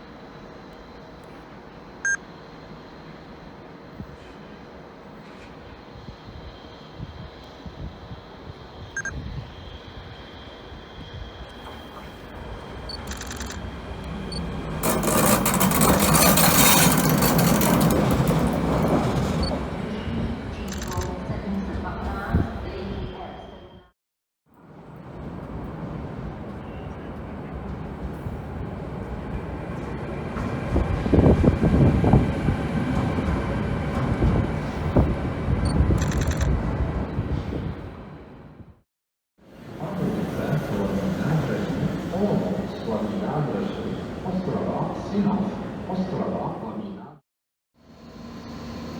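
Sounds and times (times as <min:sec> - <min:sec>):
train rumble: 0:00.0 - 0:23.8, 0:24.6 - 0:38.8, 0:39.4 - 0:47.1
wheel and rail clatter: 0:11.4 - 0:21.2, 0:25.0 - 0:35.3.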